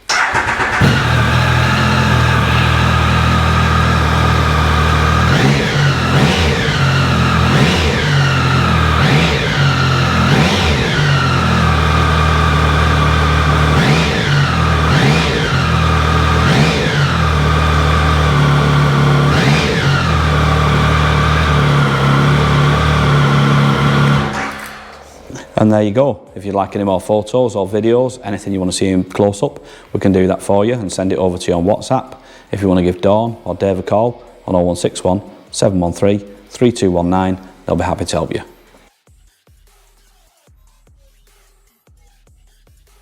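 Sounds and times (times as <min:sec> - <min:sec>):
motorcycle engine idling and revving: 0:00.0 - 0:25.6.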